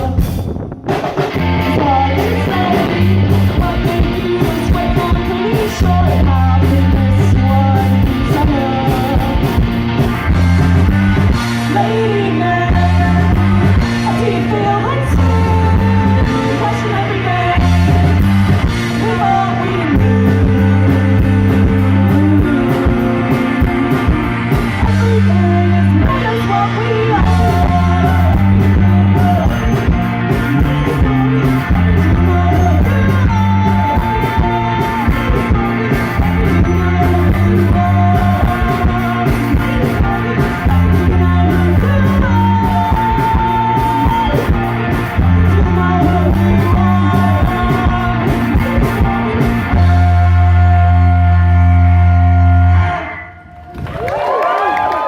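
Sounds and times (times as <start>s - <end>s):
person singing: 0.0s - 0.5s, 1.1s - 53.5s
drums with cymbal hits: 0.0s - 12.0s, 17.6s - 25.3s, 27.2s - 50.4s
pulsing bass line: 0.0s - 54.1s
electric guitar: 0.0s - 55.0s.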